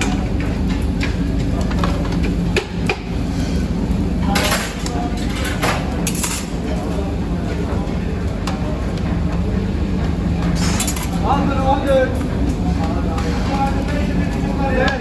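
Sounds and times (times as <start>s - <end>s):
dishes and utensils clattering: 4.2s - 7.0s, 10.5s - 11.4s
steady low hum: 6.6s - 15.0s.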